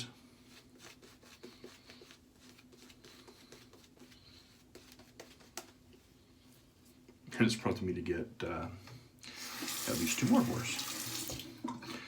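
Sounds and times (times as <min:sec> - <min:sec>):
shaving brush scratchy rubbing: 0:00.4 - 0:05.7.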